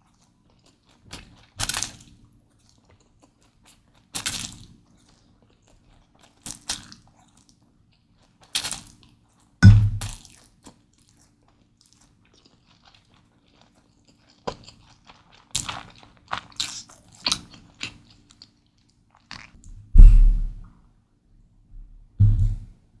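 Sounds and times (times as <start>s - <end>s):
crisp bites and chewing crunches: 0.1s - 9.2s, 9.9s - 19.6s
heavy low thump: 9.6s - 10.1s, 19.7s - 20.6s, 21.8s - 22.7s.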